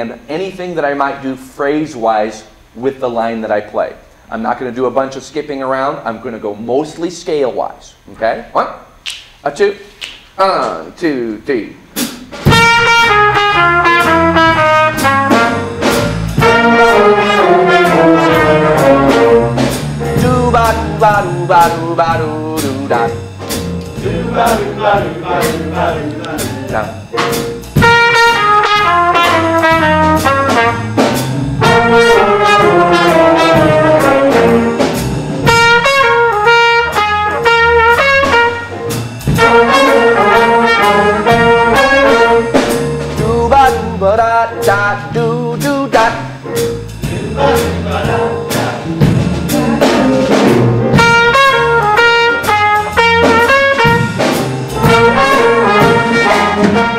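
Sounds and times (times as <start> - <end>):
blues backing track: 11.8 - 56.9
brass instrument blues phrase: 12.4 - 56.9
walking bass line: 12.4 - 56.9
person scat singing: 47.2 - 50.4.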